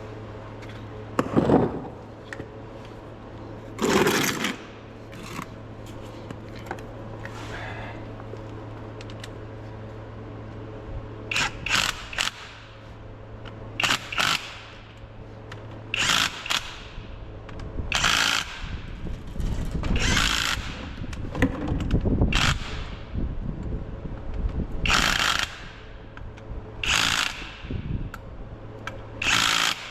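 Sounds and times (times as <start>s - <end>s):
steady low hum: 0.0s - 29.9s
power tool bursts: 29.2s - 29.9s.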